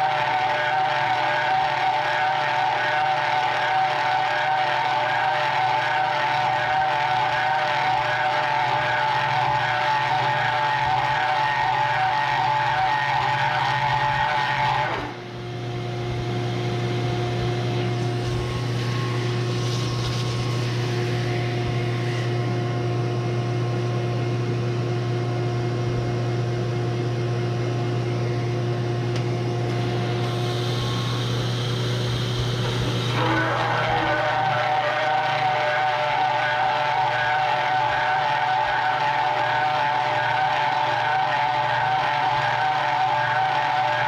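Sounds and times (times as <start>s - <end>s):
milling machine humming: 0.0s - 26.3s, 27.2s - 44.0s
hole saw cutting steel: 17.6s - 22.5s, 29.7s - 44.0s.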